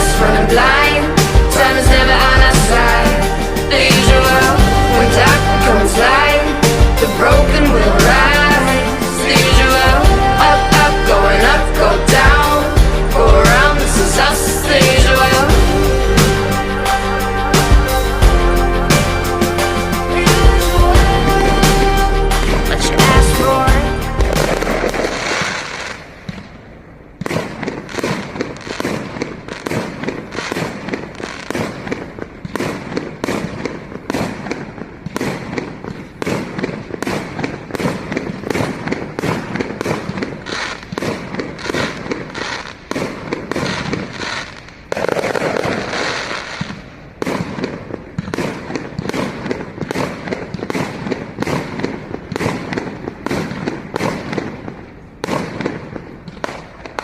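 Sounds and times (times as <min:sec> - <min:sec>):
fireworks bursting: 0:00.0 - 0:57.0.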